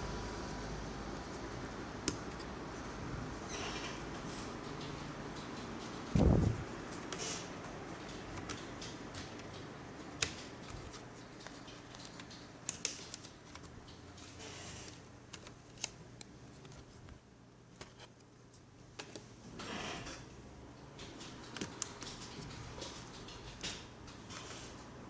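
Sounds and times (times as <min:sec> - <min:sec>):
small parts clicking and rustling: 0:08.0 - 0:16.9.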